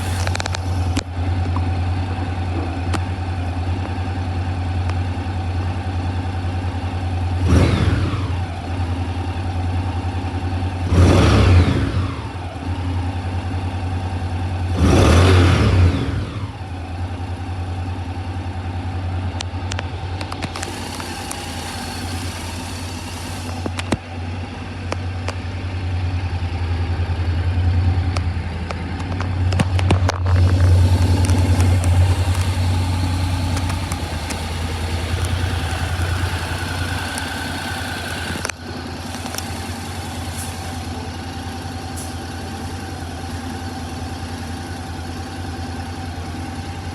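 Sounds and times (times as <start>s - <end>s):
motorcycle engine idling and revving: 0.0s - 46.9s
sharp clicks: 19.4s - 24.0s, 28.1s - 40.8s.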